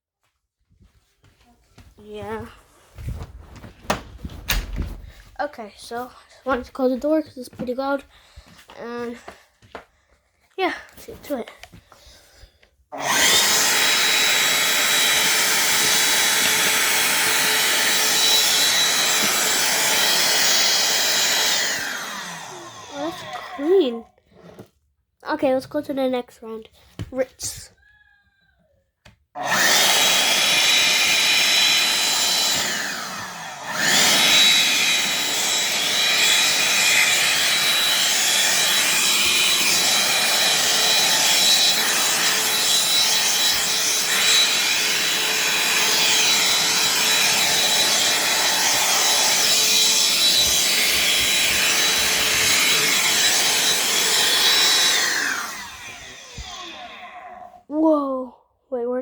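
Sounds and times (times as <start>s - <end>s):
vacuum cleaner motor whining: 12.9s - 23.8s, 29.4s - 57.3s.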